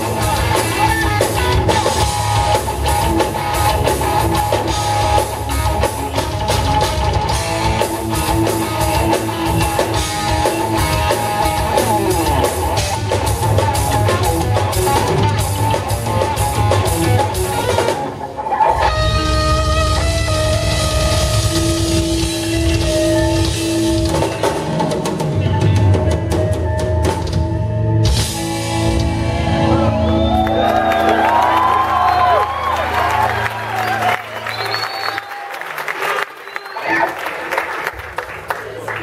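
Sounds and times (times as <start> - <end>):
electric guitar: 0.0 - 34.1
drum kit: 0.0 - 34.7.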